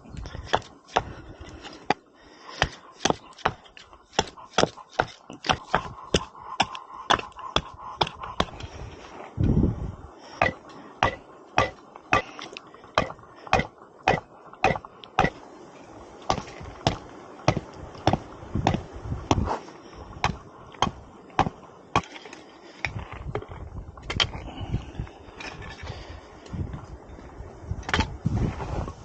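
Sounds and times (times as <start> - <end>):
sharp knocks: 13.0 - 15.4.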